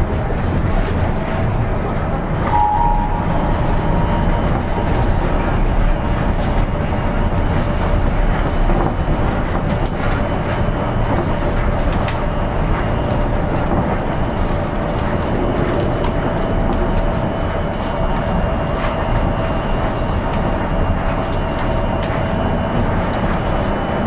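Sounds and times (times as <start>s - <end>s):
low train rumble: 0.0s - 24.0s.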